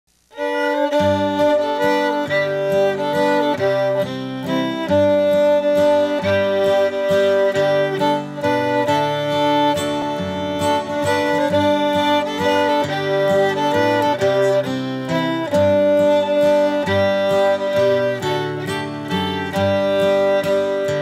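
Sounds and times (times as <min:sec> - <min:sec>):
fiddle tune: 0:00.3 - 0:21.0
guitar accompaniment: 0:00.3 - 0:21.0.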